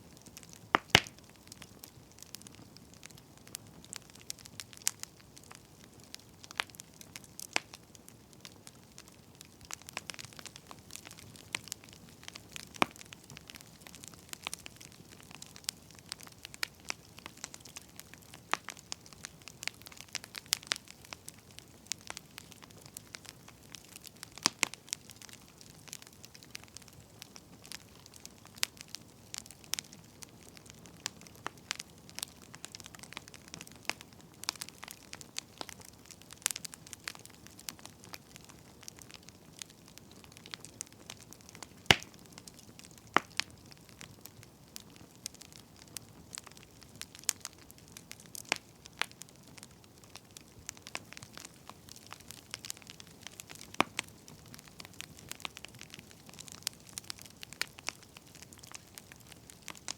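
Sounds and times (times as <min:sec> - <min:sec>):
firewood crackling and popping: 0:00.0 - 0:59.9.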